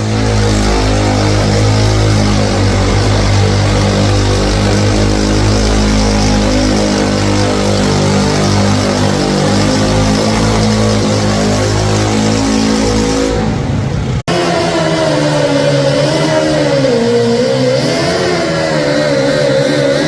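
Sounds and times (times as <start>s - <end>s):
tractor engine at high revs: 0.0s - 20.0s.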